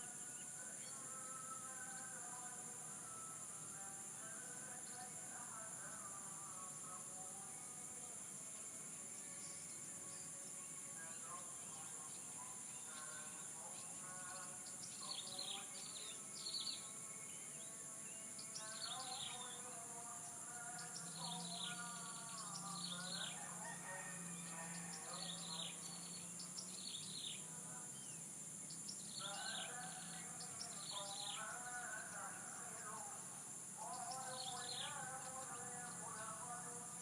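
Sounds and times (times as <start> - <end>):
small birds chirping: 0.0 - 23.5, 24.5 - 37.0
insects buzzing: 0.0 - 37.0
roosters crowing: 22.8 - 26.0.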